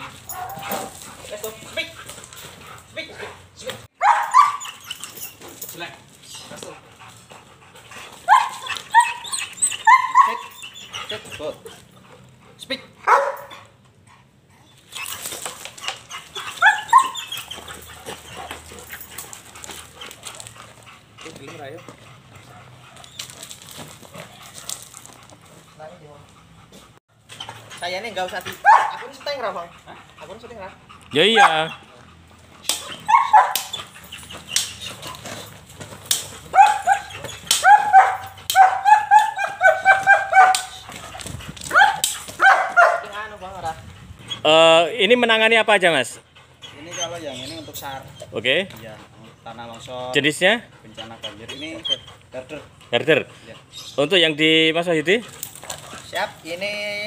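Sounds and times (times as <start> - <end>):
dog barking: 0.0 - 1.0, 4.0 - 4.8, 8.2 - 10.6, 13.0 - 13.6, 16.6 - 17.2, 28.6 - 29.4, 31.2 - 31.8, 32.7 - 33.8, 36.5 - 40.9, 41.7 - 43.2.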